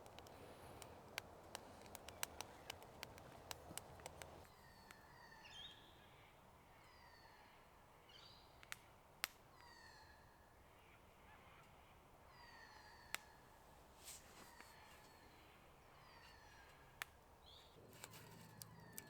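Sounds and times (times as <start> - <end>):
sharp ticks: 0.0 - 4.4
faint whistled bird calls: 0.0 - 19.0.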